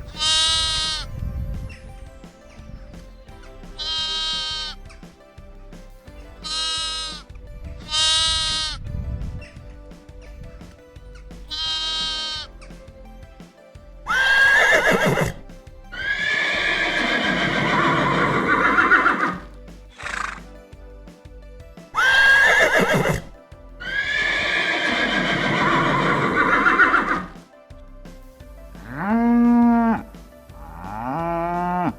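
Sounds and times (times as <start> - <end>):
background music: 0.0 - 31.9
horse whinnying: 11.5 - 12.5, 14.1 - 15.4, 16.0 - 20.4, 22.0 - 27.3.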